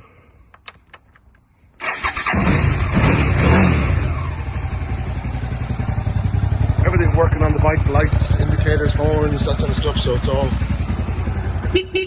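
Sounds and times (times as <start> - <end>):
clicks: 0.2 - 1.5
motorcycle engine starting and idling: 1.8 - 12.0.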